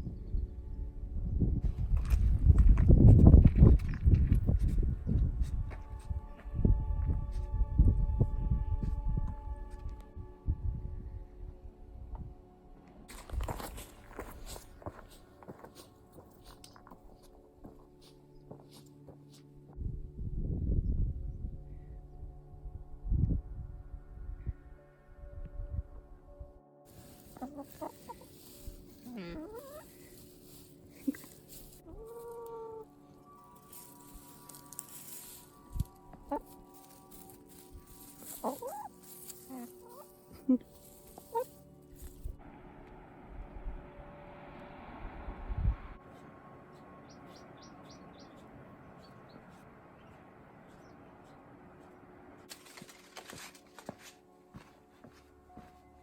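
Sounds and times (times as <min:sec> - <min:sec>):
faint background tones: 0:00.0 - 0:56.0
long held animal call: 0:31.9 - 0:33.0
small bird chirping: 0:46.7 - 0:51.9
scuffs and clicks: 0:49.5 - 0:54.8.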